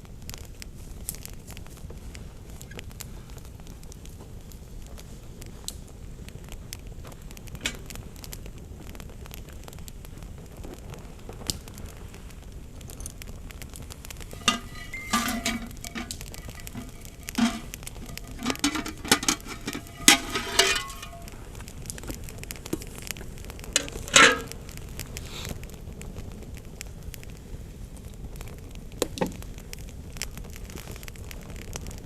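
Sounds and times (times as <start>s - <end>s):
campfire crackling: 0.0s - 32.0s
cookware clinking and clattering: 14.3s - 21.4s, 23.8s - 24.5s.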